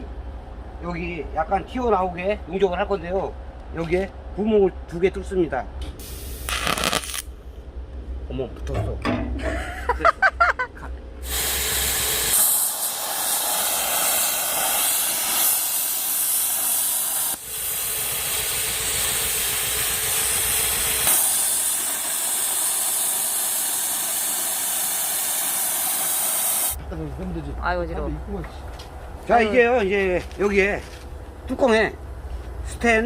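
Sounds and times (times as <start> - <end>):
arc welding hiss: 6.0 - 7.3, 11.2 - 26.8.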